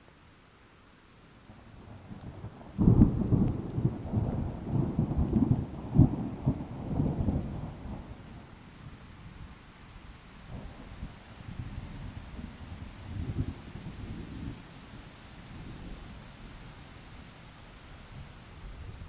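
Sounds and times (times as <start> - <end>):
rain: 0.0 - 19.0
thunder rumbling and cracking: 2.7 - 8.3.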